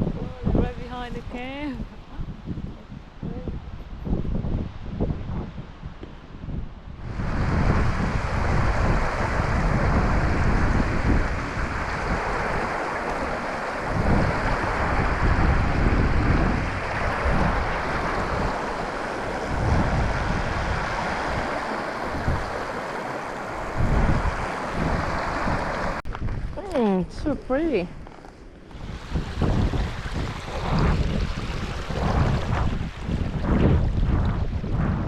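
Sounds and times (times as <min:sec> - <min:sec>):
wind gusting on microphone: 0:00.0 - 0:35.0
sea waves on shore: 0:07.0 - 0:26.0, 0:28.7 - 0:34.9.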